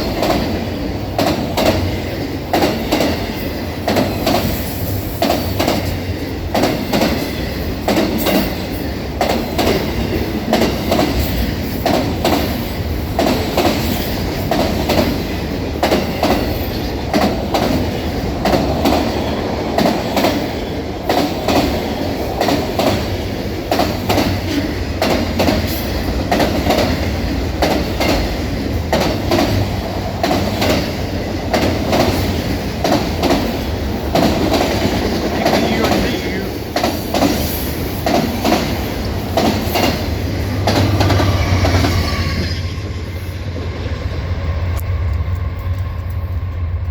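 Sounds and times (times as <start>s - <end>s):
train rumbling by: 0.0s - 46.9s
wheels clacking over rail joints: 13.2s - 42.0s.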